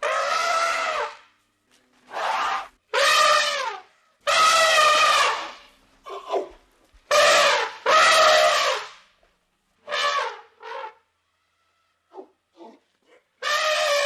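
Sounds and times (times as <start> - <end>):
elephant trumpeting: 0.0 - 1.2, 2.1 - 6.5, 7.1 - 9.0, 9.8 - 11.0, 13.4 - 14.0.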